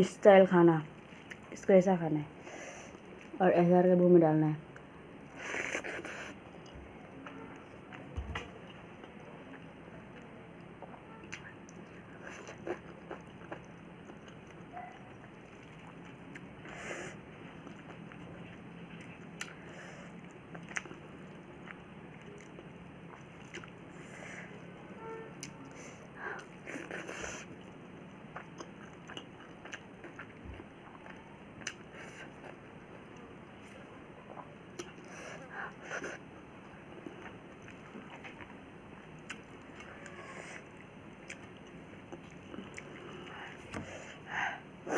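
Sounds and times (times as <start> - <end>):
person chewing: 5.4 - 6.8, 10.8 - 19.6, 20.2 - 23.8, 26.4 - 35.2, 37.1 - 44.1.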